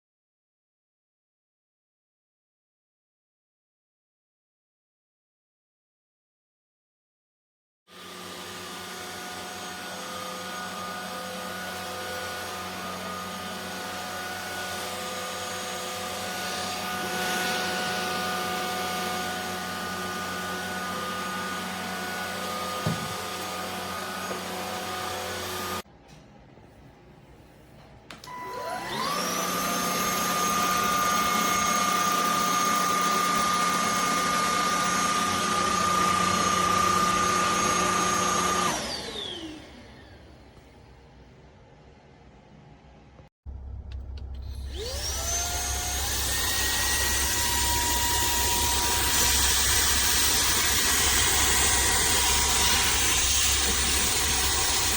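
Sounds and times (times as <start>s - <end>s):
vacuum cleaner motor whine: 7.9s - 25.8s, 28.2s - 40.6s, 44.3s - 54.9s.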